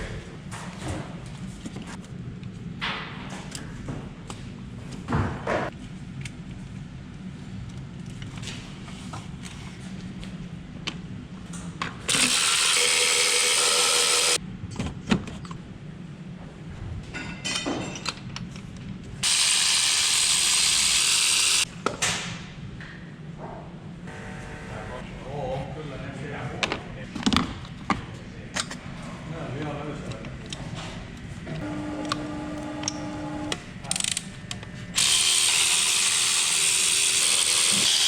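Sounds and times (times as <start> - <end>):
power tool running: 12.1 - 14.4, 19.2 - 21.7, 24.1 - 25.0, 31.5 - 33.6, 35.0 - 38.0
clinks of tools and metal parts: 17.1 - 18.7.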